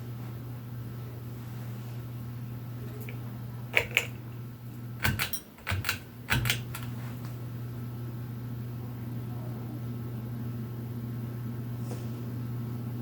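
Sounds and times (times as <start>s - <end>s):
ceiling fan humming: 0.0s - 13.0s
sharp clicks and knocks: 3.8s - 4.3s, 5.0s - 7.0s.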